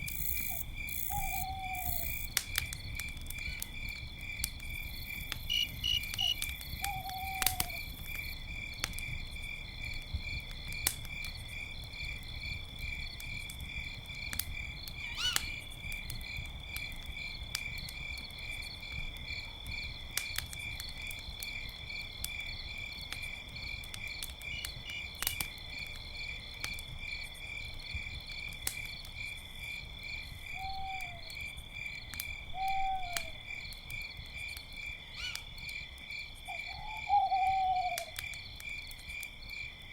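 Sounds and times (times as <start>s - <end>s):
campfire crackling and popping: 0.0s - 30.6s, 31.2s - 36.6s, 37.4s - 39.9s
crickets chirping: 0.0s - 39.9s
owl hooting: 0.5s - 2.2s, 6.2s - 7.8s, 15.2s - 15.5s, 30.6s - 31.2s, 32.6s - 33.3s, 36.5s - 38.1s.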